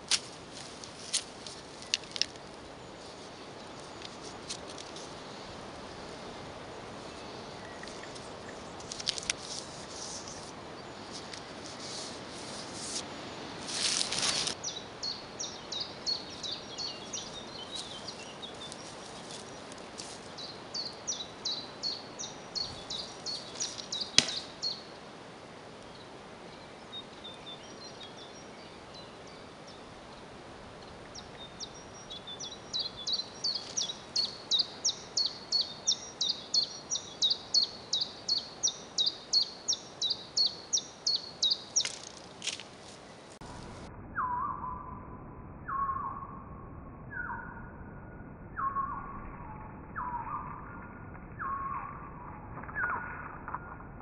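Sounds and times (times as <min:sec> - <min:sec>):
rustling handling noise: 0:00.0 - 0:05.2, 0:07.9 - 0:14.6, 0:17.6 - 0:20.4, 0:41.8 - 0:43.8
sharp click of dart launch: 0:24.2 - 0:24.5
songbird singing high notes: 0:31.2 - 0:42.1, 0:44.1 - 0:45.0, 0:45.6 - 0:46.4, 0:47.1 - 0:47.7, 0:48.5 - 0:53.2.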